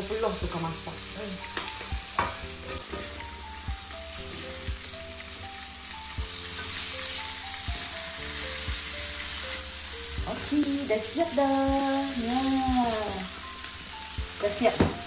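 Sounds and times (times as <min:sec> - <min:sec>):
noodles sizzling in a pan: 0:00.0 - 0:15.0
soft melody: 0:00.0 - 0:15.0
utensil knocking against pan: 0:01.6 - 0:03.2.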